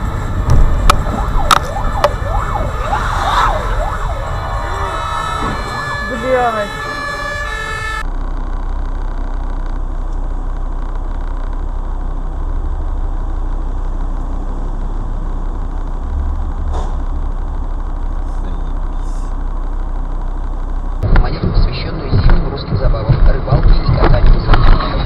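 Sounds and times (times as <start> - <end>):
fire engine siren wailing: 0.0 - 8.1
car engine idling: 0.0 - 25.0.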